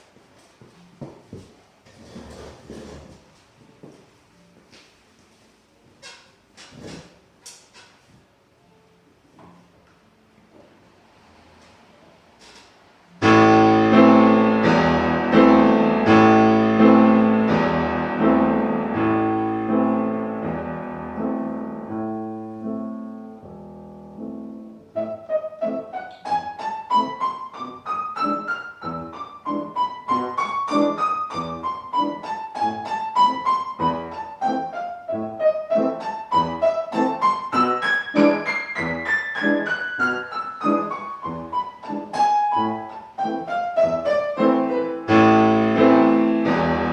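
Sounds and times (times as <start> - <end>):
piano chords: 13.0 - 46.9
piano treble melody: 13.2 - 46.9.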